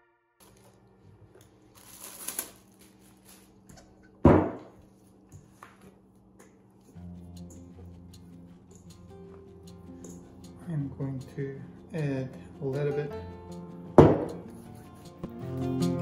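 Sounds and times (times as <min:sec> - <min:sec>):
bowl thudding onto mat: 0:14.0 - 0:14.4.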